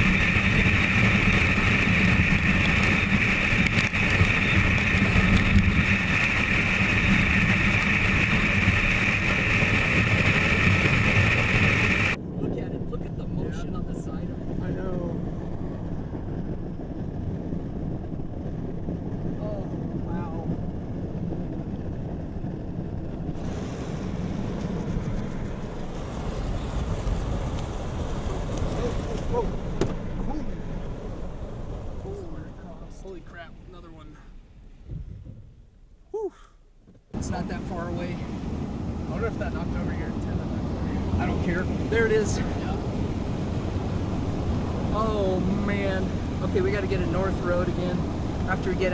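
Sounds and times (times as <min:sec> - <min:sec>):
car cabin road and wind noise: 0:00.0 - 0:36.2, 0:36.8 - 0:48.9.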